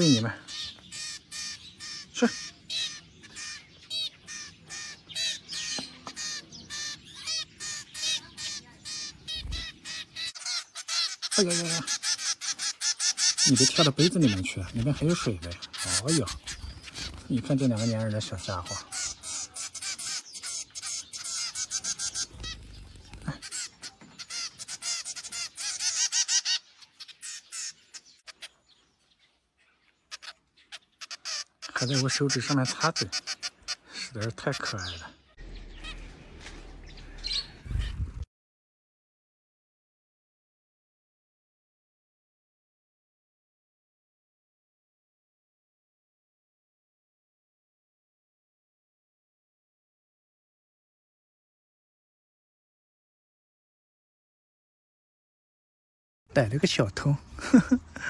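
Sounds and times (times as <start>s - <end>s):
young birds begging calls: 0.0s - 28.8s, 29.9s - 36.1s, 37.2s - 38.2s.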